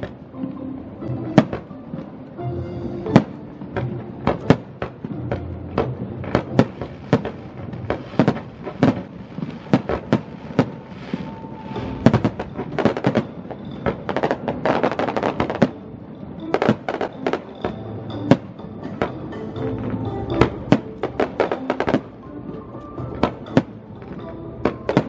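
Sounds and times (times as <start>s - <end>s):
crackling fireworks bursts: 0.0s - 2.4s, 3.0s - 25.0s
fireworks bangs: 3.1s - 18.5s, 23.1s - 25.0s.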